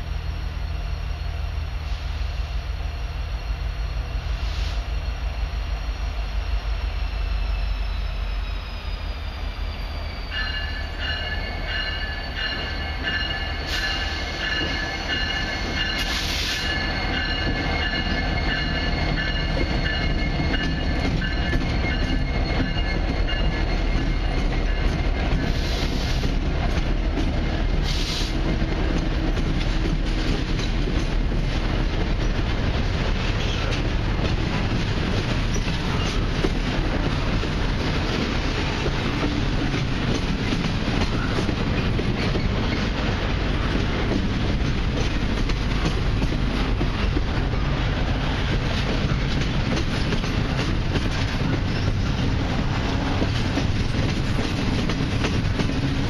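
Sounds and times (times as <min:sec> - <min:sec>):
diesel locomotive engine rumble: 0:00.0 - 0:56.0
train wheels on rails: 0:00.0 - 0:56.0
train wheels squealing: 0:00.5 - 0:26.4, 0:33.3 - 0:33.8, 0:35.4 - 0:37.4, 0:39.1 - 0:43.0, 0:49.0 - 0:56.0.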